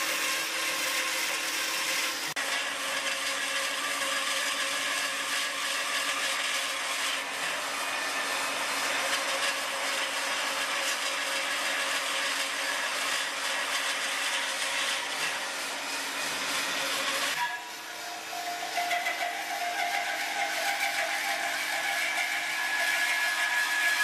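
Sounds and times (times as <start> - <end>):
machine cutting noise: 0.0 - 24.0.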